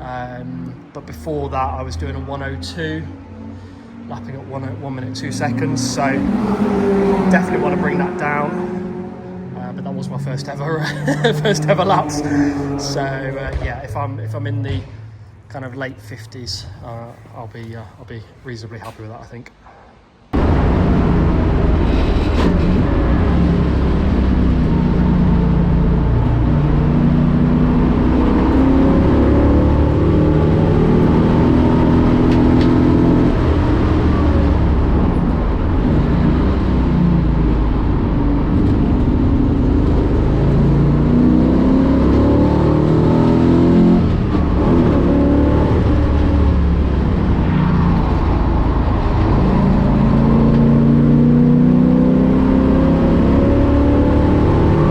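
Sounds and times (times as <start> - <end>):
race car engine shifting gears: 5.1 - 14.0, 21.8 - 54.9.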